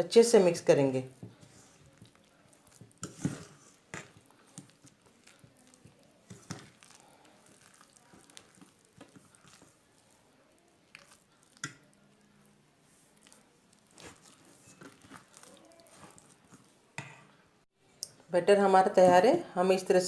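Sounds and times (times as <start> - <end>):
spoon mixing thick batter: 0.1 - 17.4
spoon tapping and scraping bowl: 1.2 - 7.0, 11.0 - 11.9.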